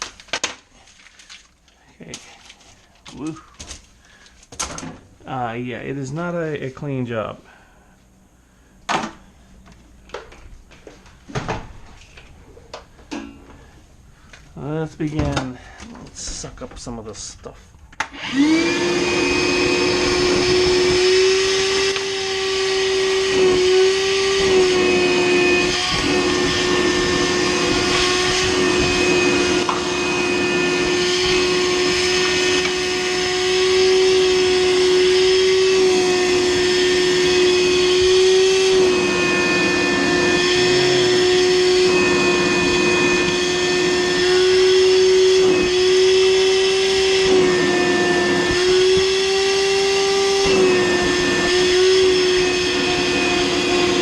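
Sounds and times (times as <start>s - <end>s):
vacuum cleaner running: 18.0s - 54.0s.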